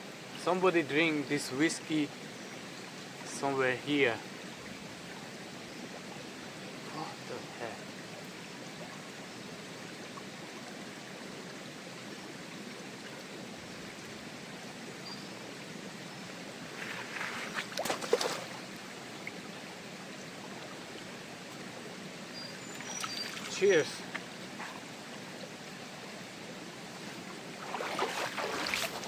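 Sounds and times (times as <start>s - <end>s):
stream flowing: 0.0s - 29.0s.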